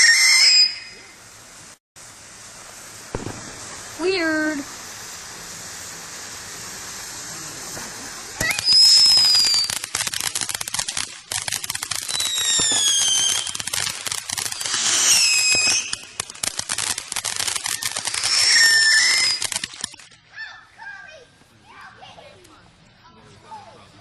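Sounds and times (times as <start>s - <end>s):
falling firework whistles: 0.0s - 20.1s
fireworks crackling: 0.0s - 22.7s
firework bang: 2.6s - 20.0s.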